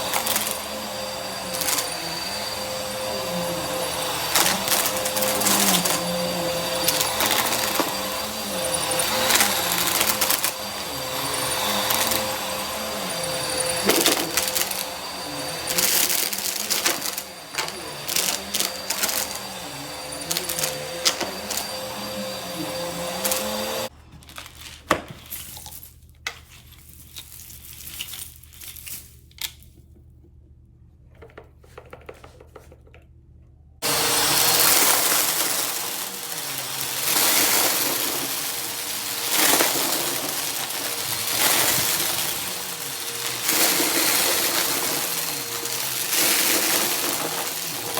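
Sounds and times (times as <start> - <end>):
vacuum cleaner running: 0.0 - 23.9, 33.8 - 47.9.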